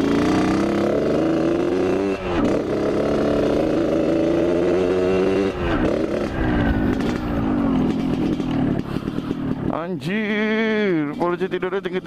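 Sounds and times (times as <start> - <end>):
two-stroke motorcycle engine: 0.0 - 12.0.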